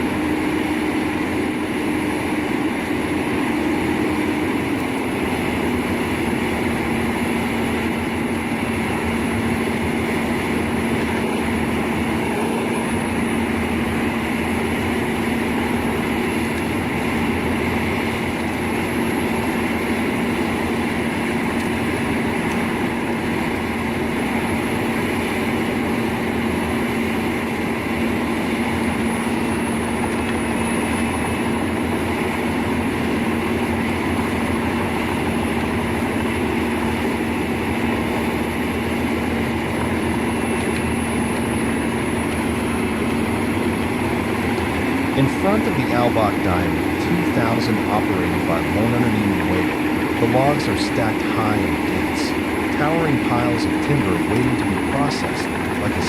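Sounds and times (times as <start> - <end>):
thin high whine: 40.3 - 56.0.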